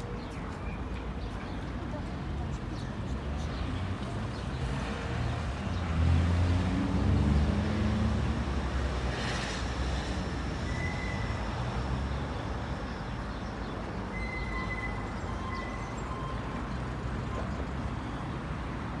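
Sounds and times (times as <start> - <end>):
traffic hum: 0.0 - 19.0
vehicle accelerating past: 4.6 - 10.0.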